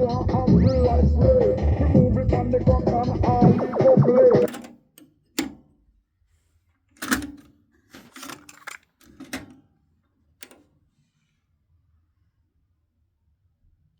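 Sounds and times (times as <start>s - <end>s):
cassette deck clicking and clunking: 4.4s - 4.8s, 5.4s - 5.7s, 7.0s - 9.6s, 10.4s - 10.6s.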